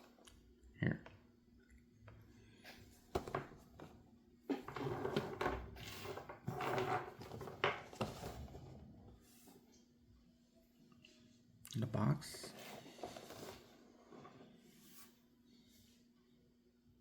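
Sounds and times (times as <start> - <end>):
box rustling and scraping: 12.4 - 15.2.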